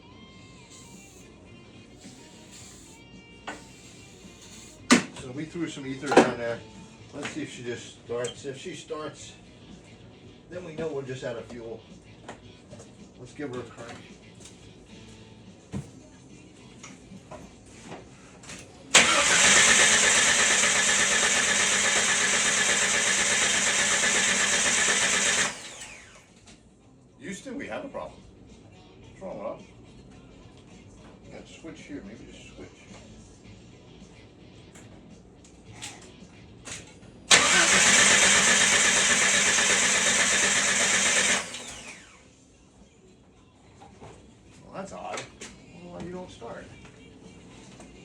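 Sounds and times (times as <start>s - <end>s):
engine cranking on starter motor: 0.5s - 1.2s, 2.0s - 5.1s, 18.9s - 26.3s, 37.3s - 42.2s.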